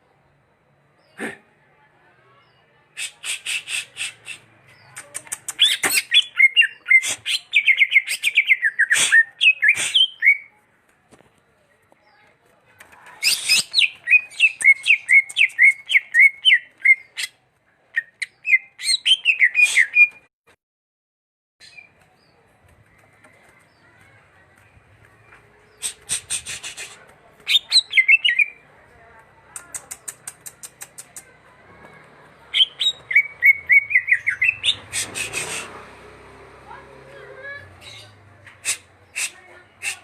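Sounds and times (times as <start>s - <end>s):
bird singing whistled notes: 32.6s - 34.8s.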